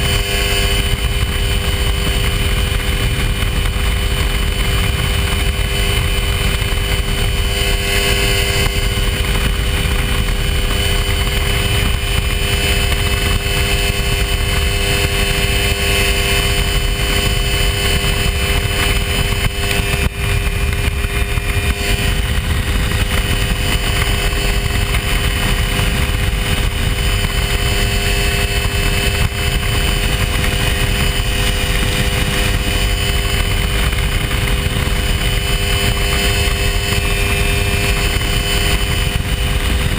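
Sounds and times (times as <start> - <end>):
light aircraft engine drone: 0.0 - 39.9.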